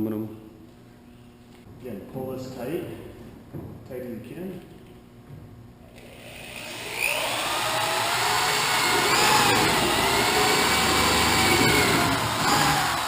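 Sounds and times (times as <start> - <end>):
power tool hissing and whining: 6.0 - 13.0.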